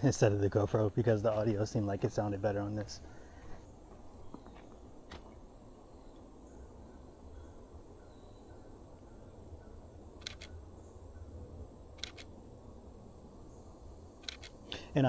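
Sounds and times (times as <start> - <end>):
camera shutter double click: 10.2 - 10.5, 12.0 - 12.3, 14.2 - 14.6.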